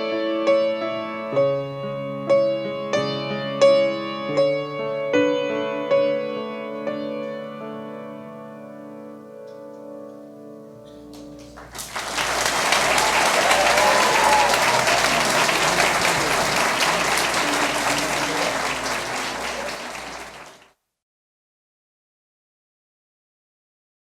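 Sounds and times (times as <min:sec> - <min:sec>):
audience applause: 0:11.4 - 0:20.7.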